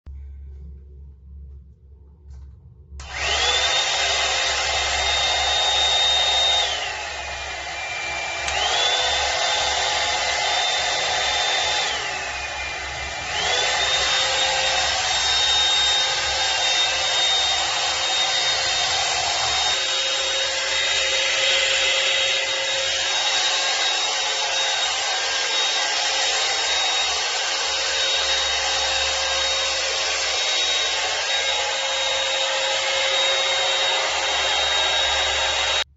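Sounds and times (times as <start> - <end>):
hot air brush fan whining: 3.0 - 35.9.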